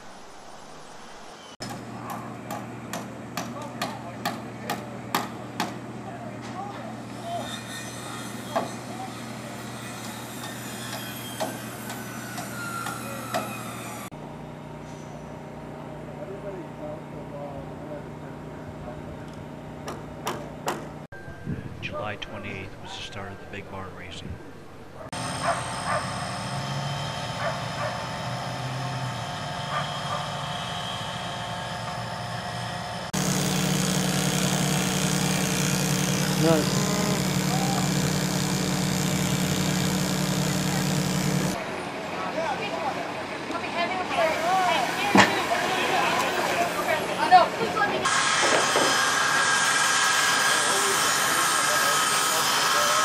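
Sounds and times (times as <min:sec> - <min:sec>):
steady engine hum: 0:14.1 - 0:48.1
low engine drone: 0:26.2 - 0:42.0
motor engine running: 0:27.3 - 0:41.7.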